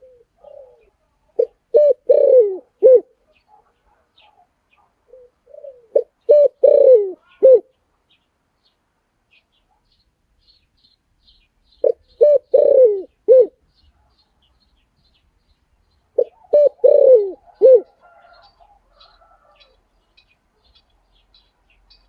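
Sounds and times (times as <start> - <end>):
small birds chirping: 0.0 - 2.3, 3.1 - 22.0
dove cooing: 0.0 - 7.7, 11.8 - 13.6, 16.2 - 19.8.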